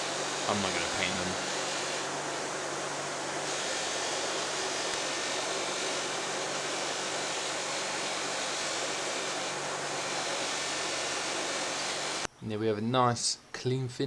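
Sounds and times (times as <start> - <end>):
electric power tool whirring: 0.0 - 12.3.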